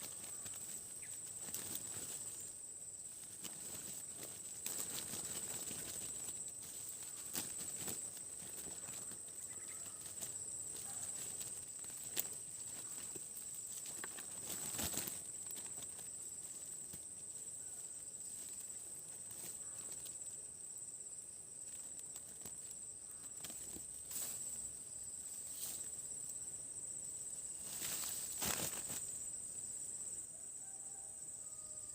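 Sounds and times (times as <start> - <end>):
handling clicks and rustles: 0.0 - 2.5, 3.1 - 17.5, 27.6 - 29.2
insect drone: 0.0 - 31.9.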